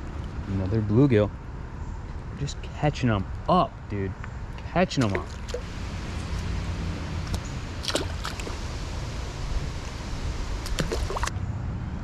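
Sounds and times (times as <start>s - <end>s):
river water rushing: 5.1s - 11.3s.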